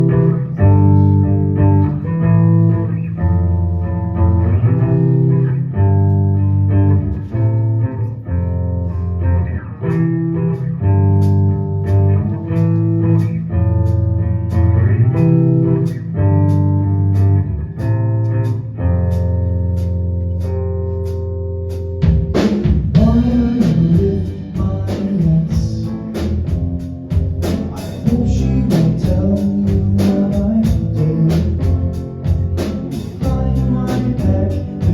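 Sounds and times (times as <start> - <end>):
bass and drums: 0.0 - 34.9
guitar chords: 0.0 - 34.9
person singing: 23.0 - 26.7, 27.4 - 34.9.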